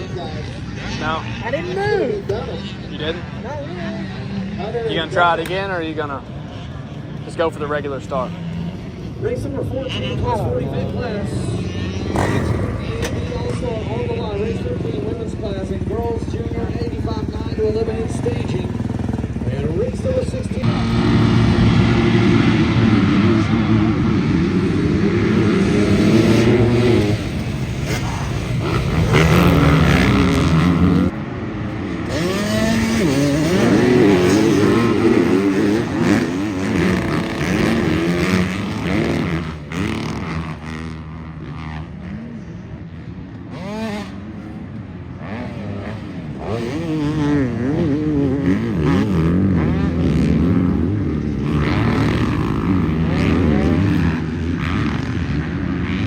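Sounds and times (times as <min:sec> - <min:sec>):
dirt bikes racing: 0:00.0 - 0:56.0.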